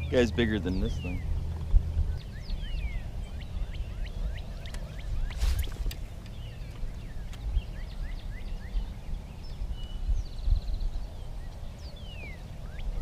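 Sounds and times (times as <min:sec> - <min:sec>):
birds chirping: 0:00.0 - 0:13.0
wind rumble on microphone: 0:00.0 - 0:13.0
bird trill: 0:02.1 - 0:10.8.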